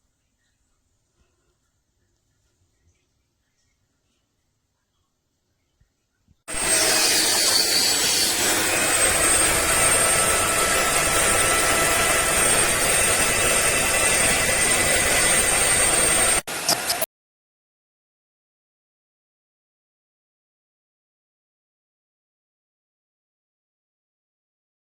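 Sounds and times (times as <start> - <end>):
spot cleaner suction motor whine: 6.5 - 17.0.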